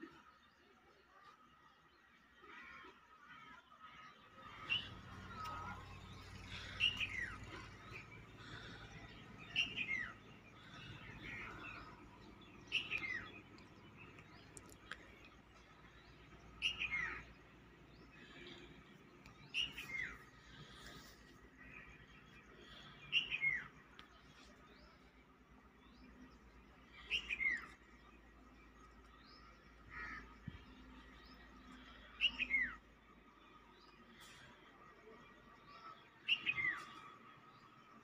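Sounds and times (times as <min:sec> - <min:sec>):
bird calling: 0:04.4 - 0:15.3, 0:16.5 - 0:24.1
low steady hum: 0:04.5 - 0:35.9.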